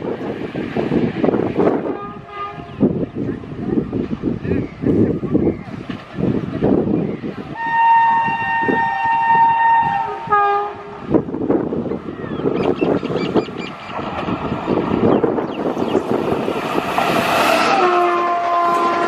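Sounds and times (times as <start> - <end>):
train wheels rumbling and clattering: 0.0 - 19.0
locomotive horn blasts: 1.8 - 2.8, 7.6 - 11.0, 17.6 - 19.0.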